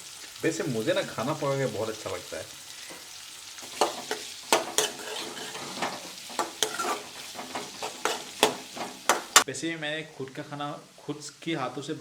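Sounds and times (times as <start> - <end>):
vegetables sizzling in hot oil: 0.0 - 9.5
spatula knocking against pan: 7.4 - 9.4.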